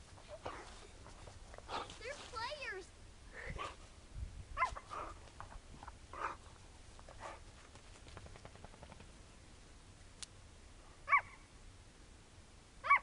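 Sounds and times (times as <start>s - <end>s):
dog yipping: 11.1s - 11.4s.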